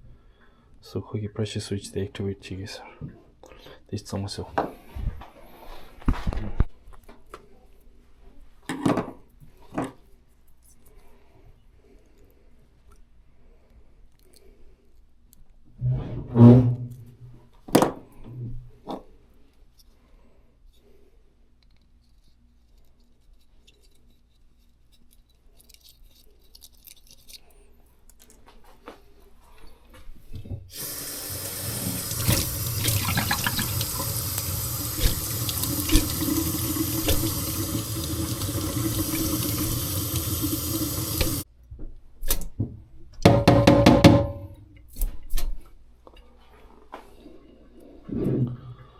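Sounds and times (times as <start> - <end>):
water running: 30.7 - 41.4.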